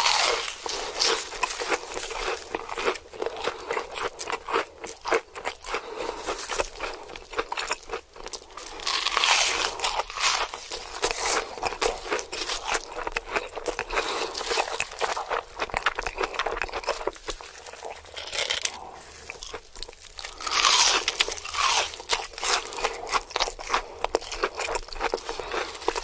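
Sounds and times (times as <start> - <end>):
crunching and chewing food: 0.0 - 26.0.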